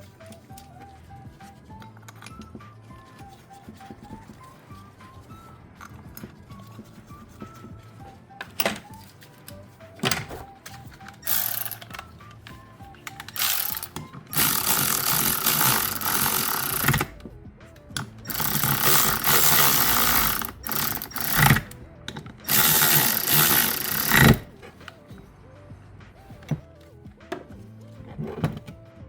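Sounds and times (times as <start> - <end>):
background music: 0.0 - 29.0
ratchet wrench clicking: 11.2 - 12.0, 13.2 - 17.2, 18.3 - 21.8, 22.4 - 24.5.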